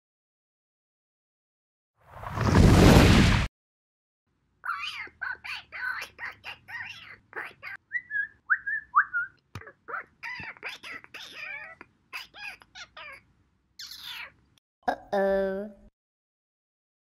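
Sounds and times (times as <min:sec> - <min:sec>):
high bird-like chirps: 0:04.7 - 0:13.2, 0:13.8 - 0:14.4.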